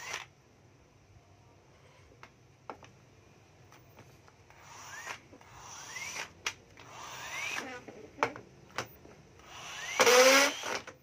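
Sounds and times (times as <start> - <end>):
hammer drill motor whine: 0.0 - 0.3, 4.5 - 7.7, 9.4 - 11.0.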